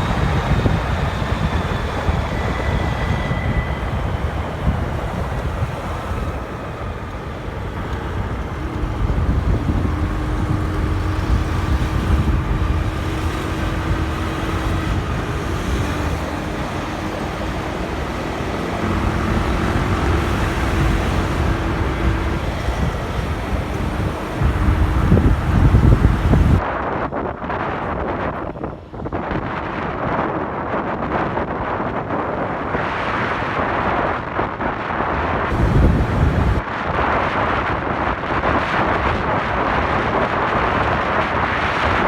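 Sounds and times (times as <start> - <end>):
motorcycle engine hum: 0.0 - 26.6, 35.5 - 36.6
wind and road noise: 0.0 - 42.0.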